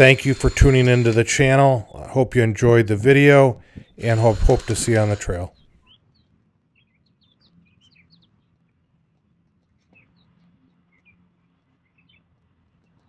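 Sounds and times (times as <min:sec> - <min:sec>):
small birds chirping: 0:03.6 - 0:13.0.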